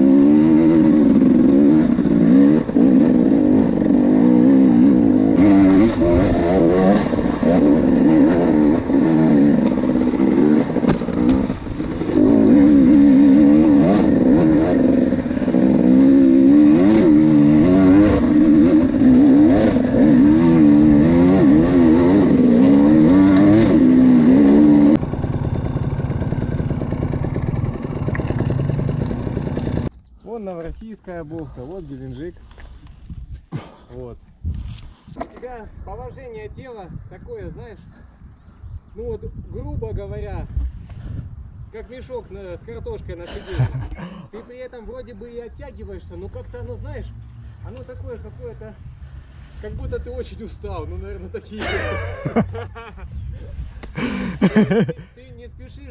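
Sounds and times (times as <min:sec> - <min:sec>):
motorcycle engine revving: 0:00.0 - 0:29.9.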